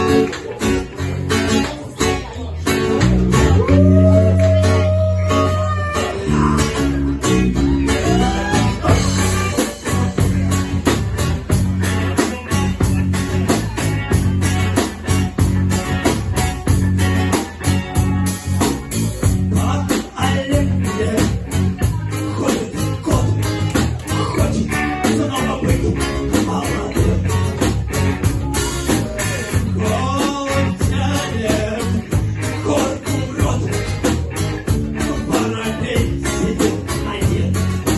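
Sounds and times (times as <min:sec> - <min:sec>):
bass notes: 0:00.0 - 0:37.9
rock band music: 0:00.0 - 0:37.9
slide guitar: 0:00.0 - 0:37.9
steady drum beat: 0:02.7 - 0:37.9
person singing: 0:03.3 - 0:10.4, 0:19.2 - 0:27.5, 0:28.4 - 0:34.1, 0:34.7 - 0:37.9.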